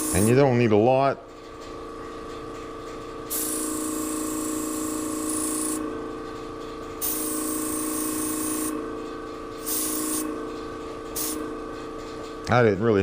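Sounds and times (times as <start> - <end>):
airbrush spraying hiss: 0.0 - 0.2
steady hum: 0.0 - 13.0.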